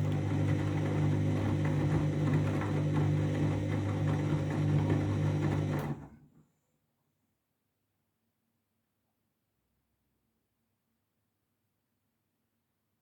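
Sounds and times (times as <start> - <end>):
washing machine humming: 0.0 - 6.2.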